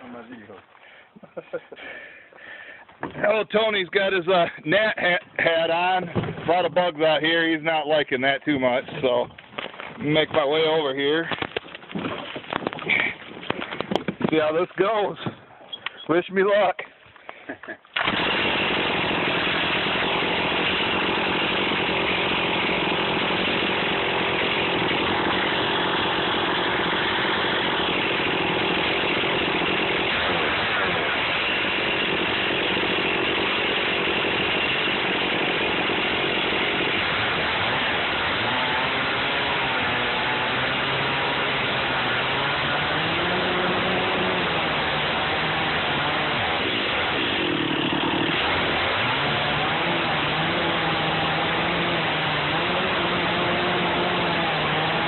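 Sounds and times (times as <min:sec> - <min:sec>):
chainsaw cutting log: 0:17.9 - 0:55.0.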